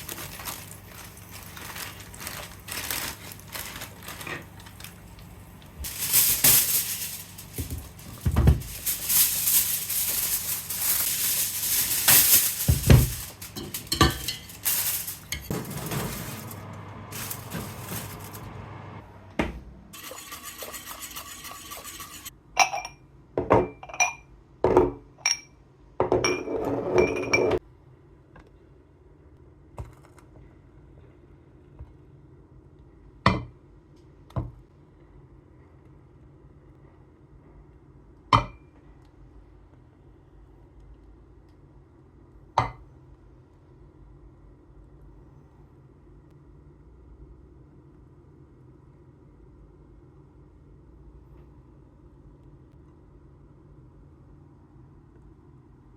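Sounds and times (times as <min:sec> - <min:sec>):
crockery clinking: 0:09.8 - 0:16.5
dishes and cutlery clattering: 0:12.7 - 0:16.5.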